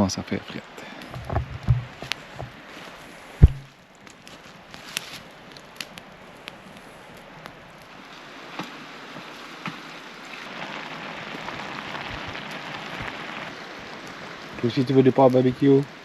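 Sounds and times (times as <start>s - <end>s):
meat sizzling in a pan: 9.4s - 15.8s.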